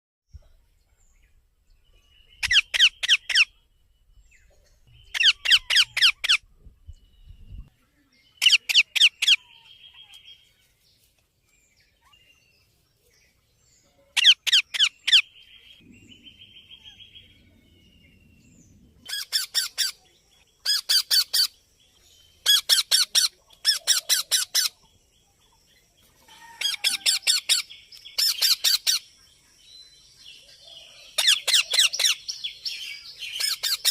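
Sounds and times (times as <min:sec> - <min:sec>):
parrot squawking: 0:05.1 - 0:06.4, 0:14.2 - 0:15.2.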